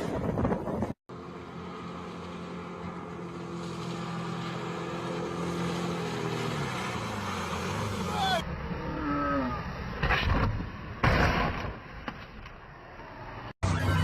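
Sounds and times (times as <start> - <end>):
wind on microphone: 0.0 - 1.0
motorboat engine running: 0.6 - 9.1.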